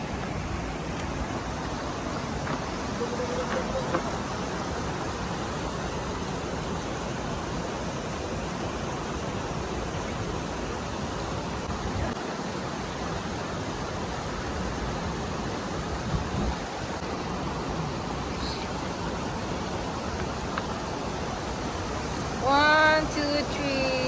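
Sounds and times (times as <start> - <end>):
flowing water rushing: 0.0 - 24.0
wind buffeting microphone: 14.6 - 17.1.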